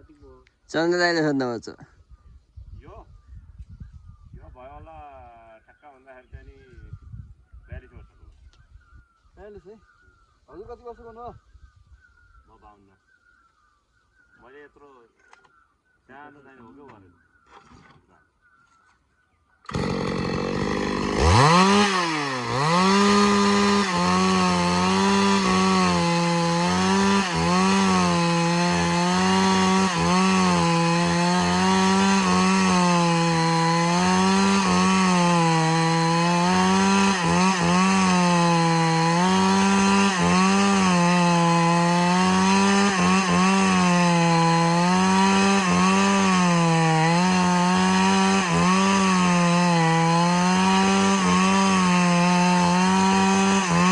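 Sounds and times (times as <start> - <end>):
chainsaw cutting log: 19.7 - 53.9.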